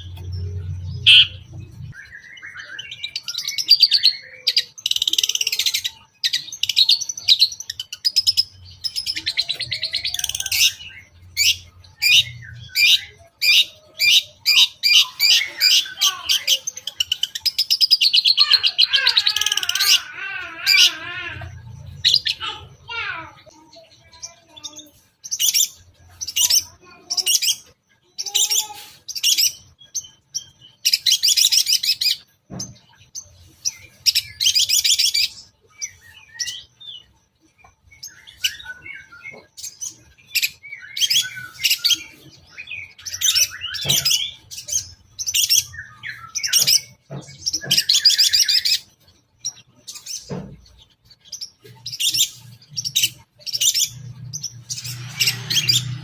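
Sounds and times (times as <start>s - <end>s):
bird singing chirps and whistles: 0.9s - 5.4s, 37.9s - 48.9s.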